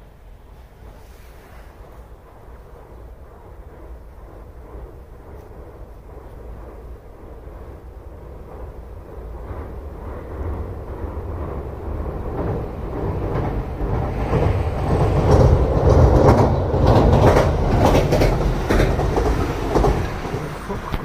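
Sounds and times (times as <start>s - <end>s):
electric train rumbling on bridge: 0.0s - 21.0s
wheels clacking over rail joints: 9.5s - 21.0s.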